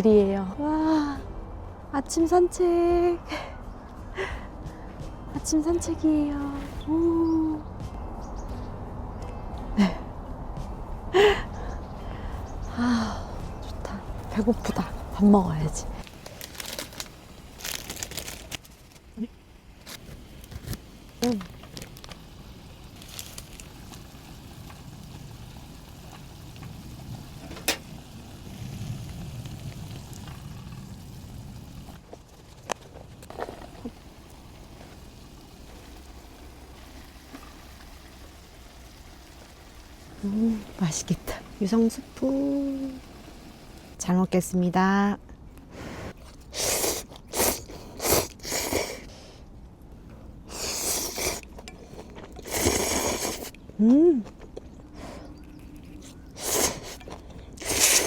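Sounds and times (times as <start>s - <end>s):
water boiling in a pot: 14.3s - 44.5s
person slurping noodles: 46.0s - 49.1s, 50.5s - 51.5s, 52.4s - 53.6s, 55.7s - 58.0s.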